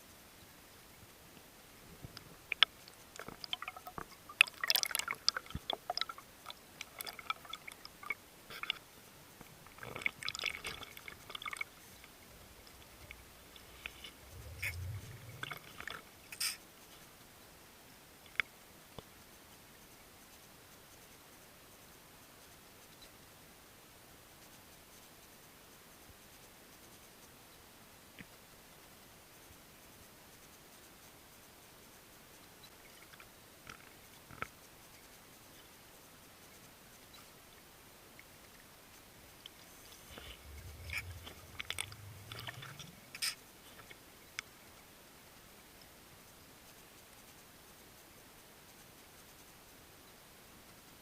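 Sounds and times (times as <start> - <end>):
faint steady hiss: 0.0 - 51.0
underwater bubbling crackles: 2.0 - 16.7, 37.2 - 44.5
underwater clicks: 39.4 - 43.4.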